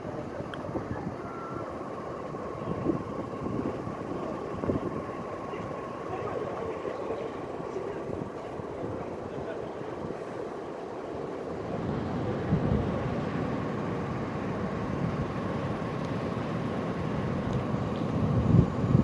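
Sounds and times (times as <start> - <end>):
wind buffeting microphone: 0.1 - 6.8, 11.6 - 19.0.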